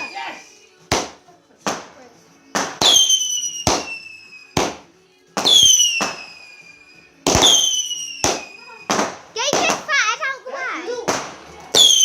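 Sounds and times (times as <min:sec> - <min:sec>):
fireworks bangs: 0:02.5 - 0:06.5, 0:07.2 - 0:10.0, 0:10.9 - 0:12.0.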